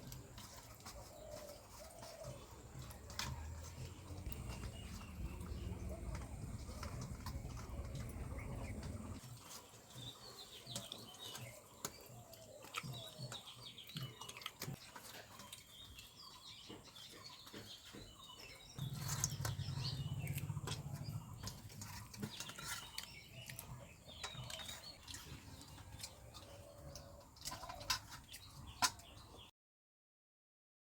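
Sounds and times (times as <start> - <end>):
small birds chirping: 0.0 - 29.5
low steady hum: 2.3 - 9.2, 18.8 - 27.6.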